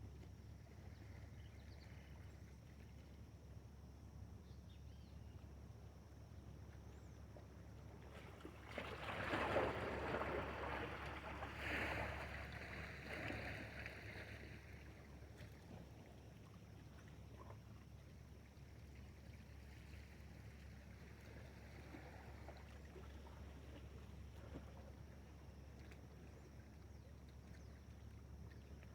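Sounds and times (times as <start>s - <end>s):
water splashing and sloshing: 7.6s - 28.9s.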